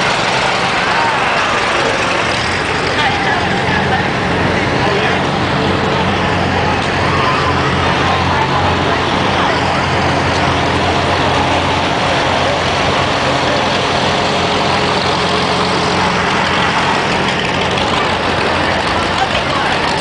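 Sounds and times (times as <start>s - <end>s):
tractor engine droning: 0.0s - 20.0s.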